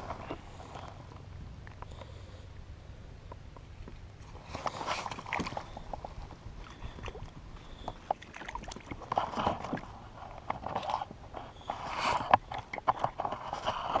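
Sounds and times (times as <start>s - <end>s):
rustling splashes from kayak handling: 4.2s - 14.0s.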